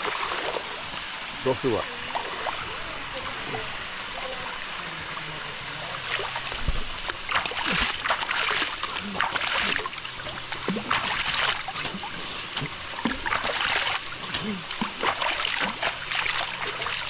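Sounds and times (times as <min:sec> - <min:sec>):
waterfall rushing: 0:00.0 - 0:06.8
water splashing on a body: 0:00.0 - 0:17.0.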